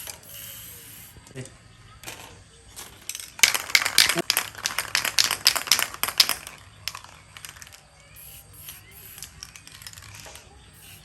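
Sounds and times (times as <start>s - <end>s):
metal parts rattling and clicking: 2.0s - 7.9s, 8.6s - 11.0s.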